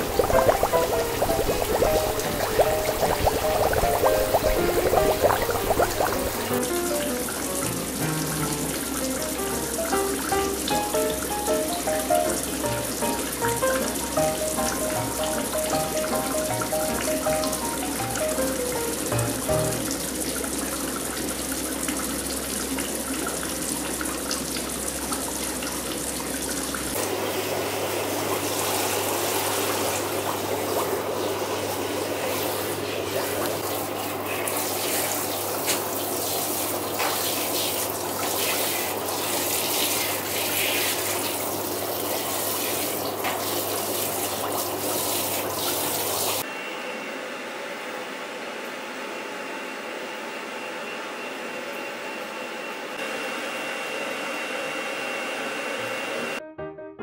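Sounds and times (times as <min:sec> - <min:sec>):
shower water spraying: 0:00.0 - 0:46.4
hair dryer blowing: 0:53.0 - 0:56.4.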